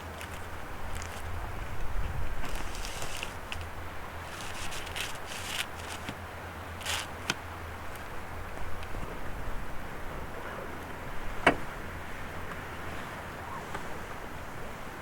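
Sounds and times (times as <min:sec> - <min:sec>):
rustling and clicking handling noise: 0:00.0 - 0:09.1
low steady rumble: 0:00.0 - 0:13.2.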